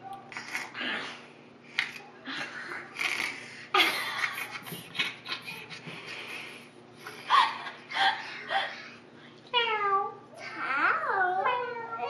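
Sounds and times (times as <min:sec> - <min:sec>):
person giggling: 0:02.9 - 0:08.8.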